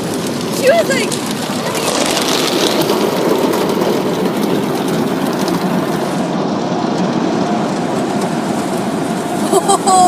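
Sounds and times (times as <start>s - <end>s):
car wash water spray: 0.0s - 10.0s.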